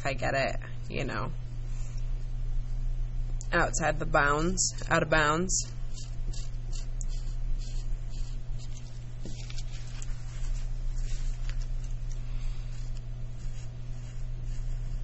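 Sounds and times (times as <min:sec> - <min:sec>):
steady low hum: 0:00.0 - 0:15.0
marker rubbing over fabric: 0:05.6 - 0:11.7, 0:12.6 - 0:15.0.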